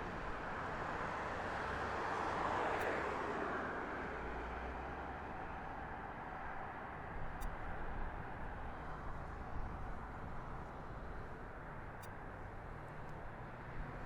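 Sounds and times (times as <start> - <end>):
faint ticks: 7.4 - 7.6.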